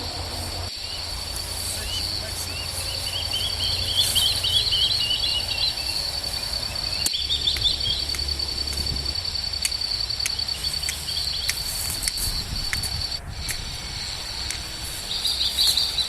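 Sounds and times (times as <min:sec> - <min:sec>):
birds chirping: 0:00.0 - 0:16.0
insects trilling: 0:00.0 - 0:16.0
scattered clicks: 0:05.2 - 0:16.0.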